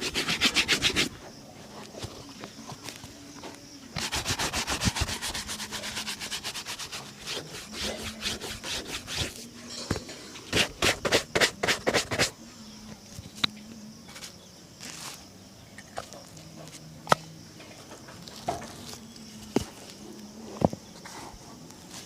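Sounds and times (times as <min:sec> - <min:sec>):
shoe buffing strokes: 0:00.0 - 0:01.2, 0:04.0 - 0:09.5, 0:10.4 - 0:12.4.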